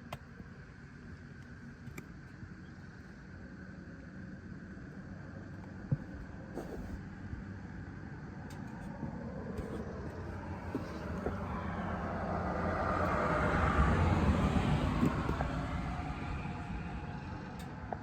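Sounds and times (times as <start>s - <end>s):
motor vehicle passing by: 8.9s - 18.0s.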